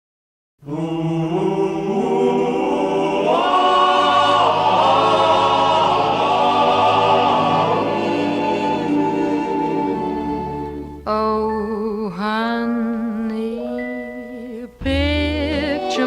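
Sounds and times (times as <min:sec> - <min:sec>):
wordless choir with orchestra: 0:00.6 - 0:11.1, 0:13.2 - 0:16.0.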